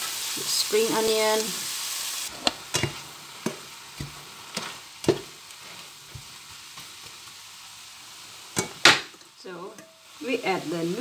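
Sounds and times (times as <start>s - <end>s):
food sizzling in a frying pan: 0.0s - 11.0s
spatula stirring: 2.7s - 7.3s.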